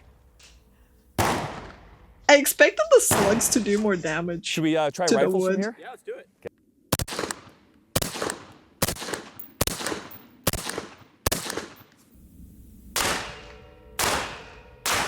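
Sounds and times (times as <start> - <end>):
rifle rounds striking wooden wall: 1.2 - 1.9.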